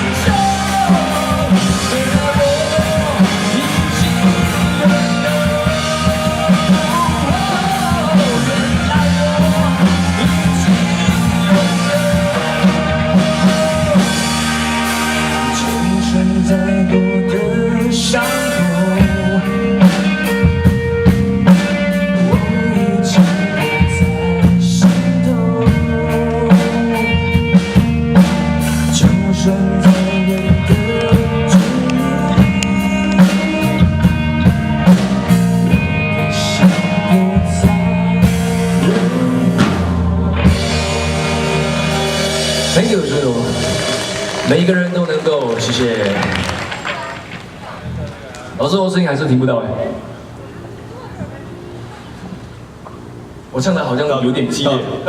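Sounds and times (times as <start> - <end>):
person singing: 0.0 - 44.7
rock band playing: 0.0 - 48.7.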